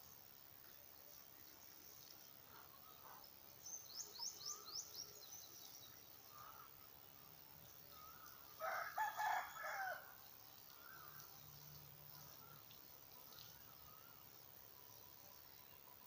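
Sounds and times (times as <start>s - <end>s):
faint bird calls: 6.2s - 7.0s
rooster crowing: 8.6s - 10.1s.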